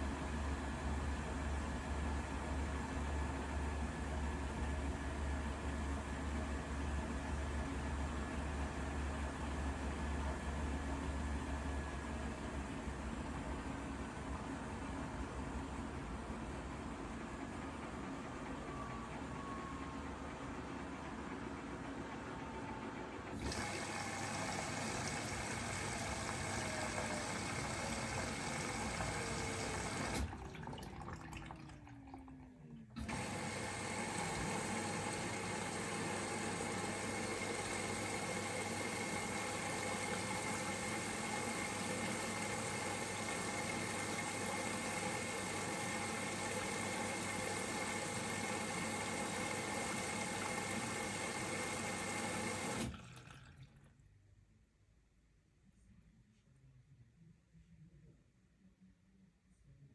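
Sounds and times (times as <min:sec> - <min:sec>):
water rushing into washing machine: 0:23.3 - 0:54.0.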